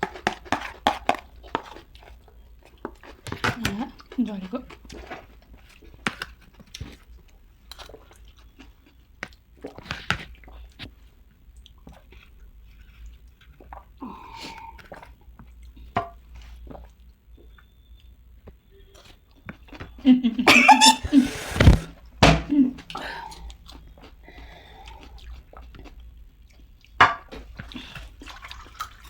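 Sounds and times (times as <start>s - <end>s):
chewing crunchy snack: 0.0s - 18.1s, 22.9s - 29.0s.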